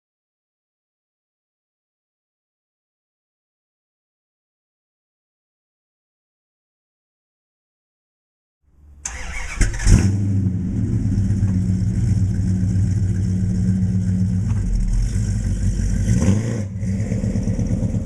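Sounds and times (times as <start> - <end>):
car engine cranking and idling: 8.8 - 18.0.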